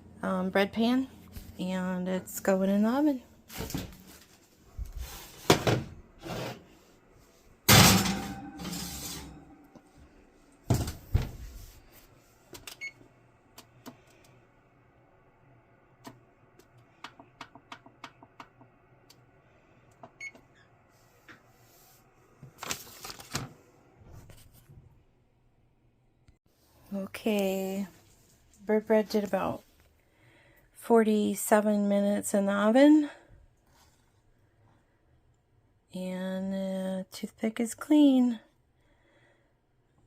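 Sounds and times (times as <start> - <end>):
oven door clanking shut: 7.7 - 8.8.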